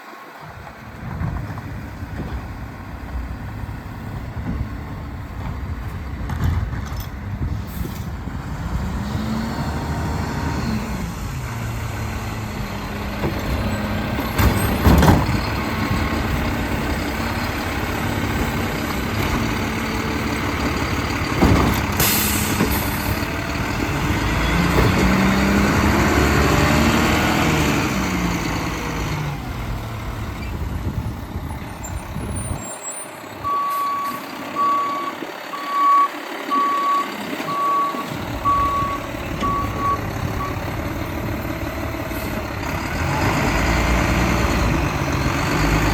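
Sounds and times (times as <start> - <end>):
garbage truck diesel engine revving: 7.2 - 45.9.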